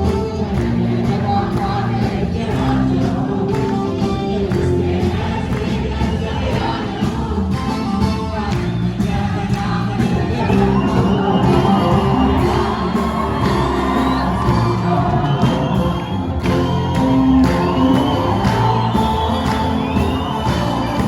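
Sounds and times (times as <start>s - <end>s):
instrumental music with steady beat: 0.0s - 21.0s
person singing: 9.4s - 21.0s.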